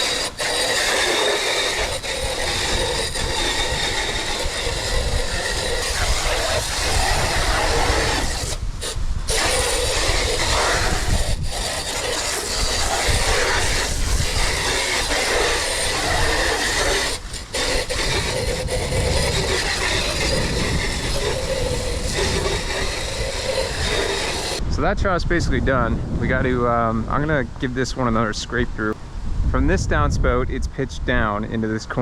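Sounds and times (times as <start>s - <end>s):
water flushing through gutter: 0.0s - 8.6s, 9.3s - 24.6s
strong wind on microphone: 0.0s - 32.0s.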